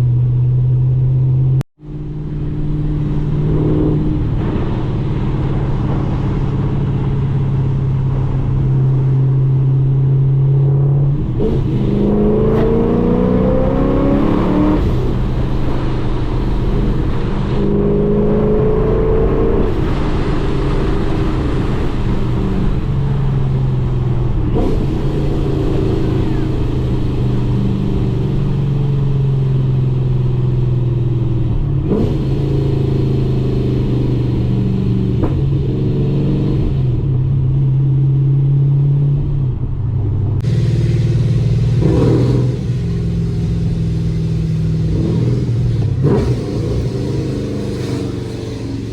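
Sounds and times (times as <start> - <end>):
car engine and exhaust: 0.0 - 48.9
exhaust pops: 40.4 - 48.9.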